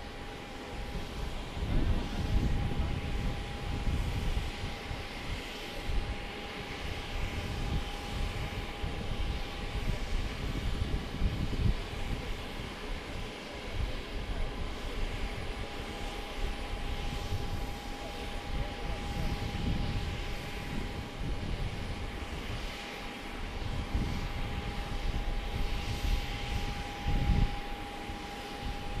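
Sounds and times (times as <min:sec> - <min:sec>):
jet engine whine: 0:00.0 - 0:29.0
wind buffeting microphone: 0:00.8 - 0:15.6, 0:16.5 - 0:22.8, 0:23.4 - 0:29.0.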